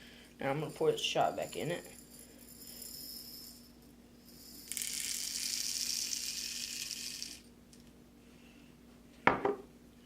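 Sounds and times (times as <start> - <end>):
pellets rattling into plastic cup: 4.4 - 7.5.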